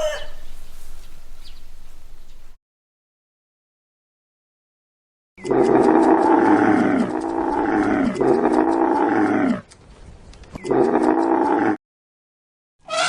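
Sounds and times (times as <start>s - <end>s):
large animal roaring calls: 5.4s - 9.7s, 10.6s - 11.8s.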